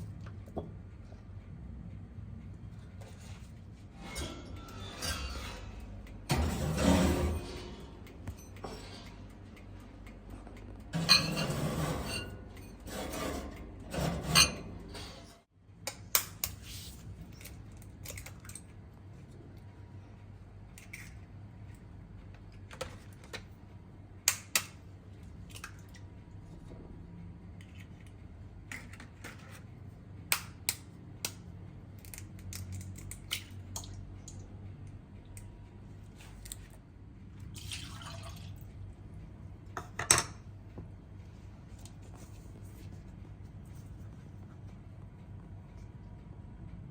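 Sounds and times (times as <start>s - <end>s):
low steady hum: 0.0s - 15.8s
dishes and utensils clinking: 11.0s - 12.9s.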